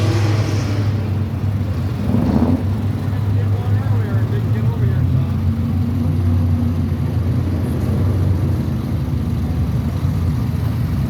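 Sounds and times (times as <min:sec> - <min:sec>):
car driving past: 0:00.0 - 0:02.8.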